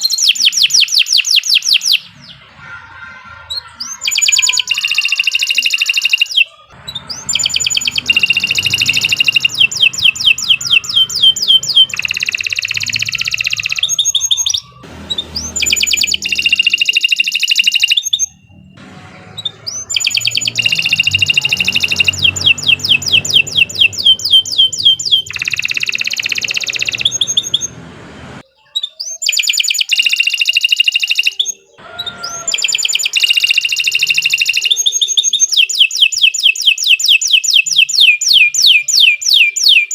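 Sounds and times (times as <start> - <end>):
canary singing rolling trills: 0.0 - 39.9.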